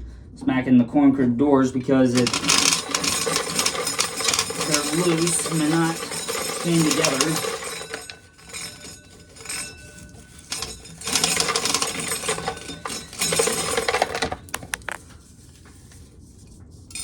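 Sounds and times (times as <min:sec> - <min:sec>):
corn sheller rattling: 0:01.8 - 0:09.5, 0:10.4 - 0:15.0
kernels clattering: 0:02.0 - 0:08.1
sharp clicks: 0:14.6 - 0:15.0.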